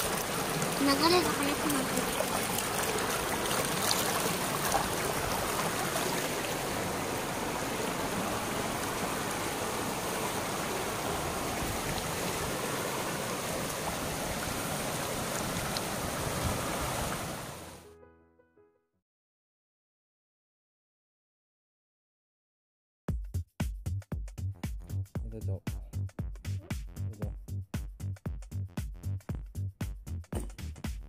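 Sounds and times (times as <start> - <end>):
stream rushing over rocks: 0.0 - 17.8.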